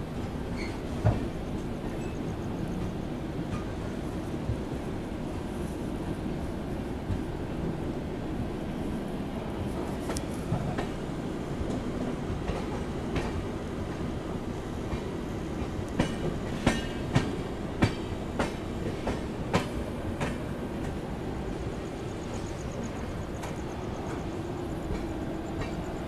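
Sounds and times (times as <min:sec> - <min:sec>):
rumble of train wheels on rail: 0:00.0 - 0:26.0.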